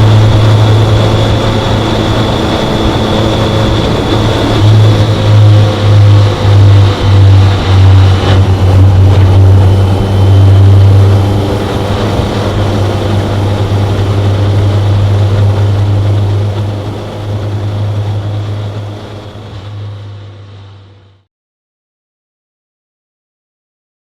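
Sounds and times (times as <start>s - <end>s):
motorcycle engine running: 0.0s - 21.2s.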